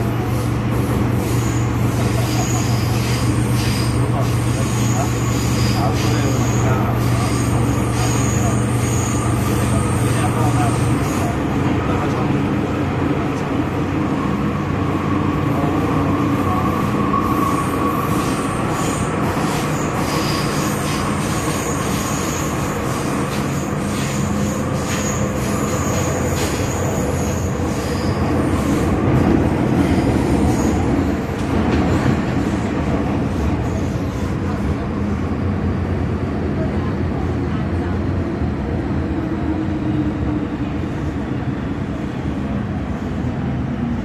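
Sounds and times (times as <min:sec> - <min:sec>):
train wheels rumbling on track: 0:00.0 - 0:44.0
high wheel squeal: 0:00.3 - 0:11.4, 0:16.4 - 0:29.0.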